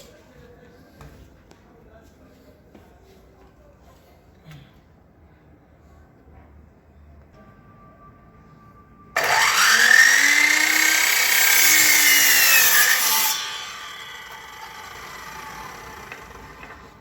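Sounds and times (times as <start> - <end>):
electric power saw cutting wood: 9.2 - 17.0.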